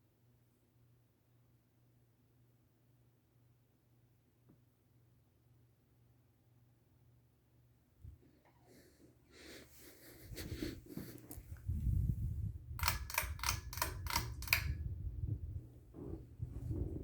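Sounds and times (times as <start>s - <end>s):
ceiling fan running: 7.6s - 17.0s
sharp clicks: 12.8s - 14.8s.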